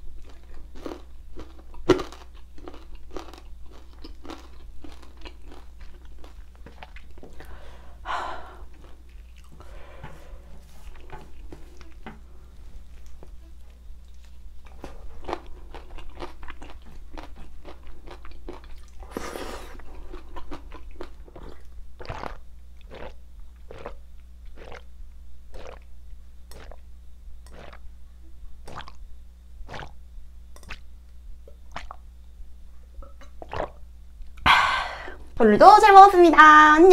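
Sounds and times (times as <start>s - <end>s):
chewing and crunching food: 0.0s - 7.5s, 8.7s - 9.6s, 10.8s - 24.9s, 25.5s - 25.9s, 26.5s - 26.8s, 27.5s - 27.8s, 28.6s - 29.0s, 29.7s - 30.0s
person gulping a drink: 19.8s - 24.9s, 25.5s - 25.9s, 26.5s - 26.8s, 27.4s - 27.8s, 28.6s - 29.0s, 29.7s - 30.0s, 31.7s - 32.0s, 33.0s - 33.8s.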